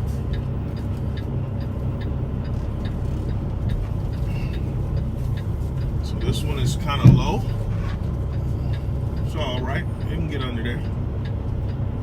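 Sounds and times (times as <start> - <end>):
diesel truck engine idling: 0.0 - 12.0
light ticking: 0.0 - 12.0.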